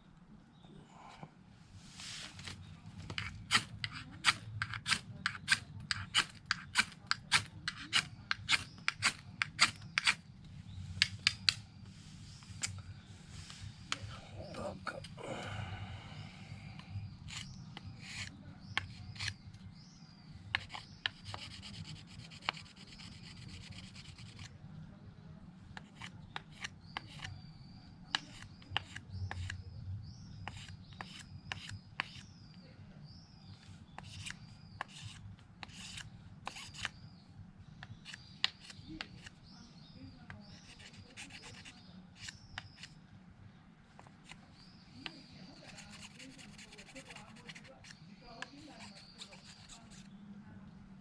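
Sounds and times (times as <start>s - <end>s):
knife scraping wood: 2.0s - 10.2s, 17.1s - 19.4s, 20.5s - 24.6s, 25.8s - 27.4s, 28.1s - 29.6s, 30.4s - 32.3s, 34.0s - 37.0s, 37.8s - 39.5s, 40.4s - 43.0s, 45.5s - 50.1s.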